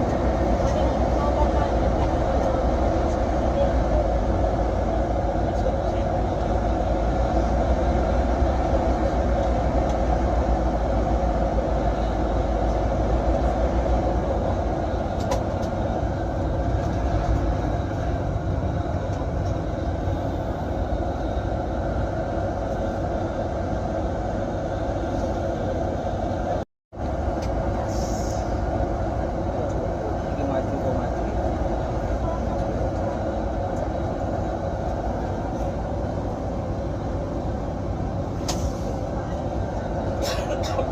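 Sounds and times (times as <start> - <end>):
bus engine and road rumble: 0.0 - 40.9.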